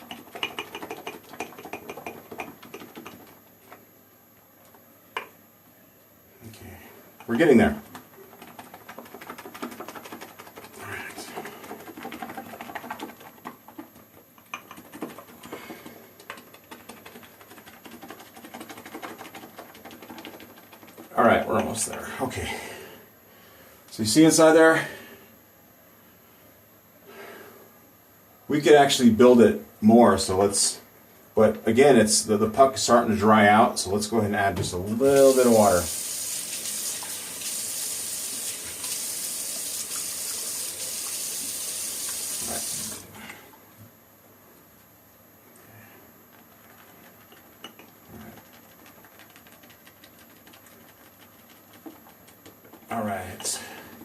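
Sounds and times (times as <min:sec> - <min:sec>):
shaving brush scratching in mug: 0:08.2 - 0:13.9, 0:14.6 - 0:15.5, 0:16.3 - 0:21.7, 0:46.4 - 0:53.1
water running from a tap: 0:35.0 - 0:43.0.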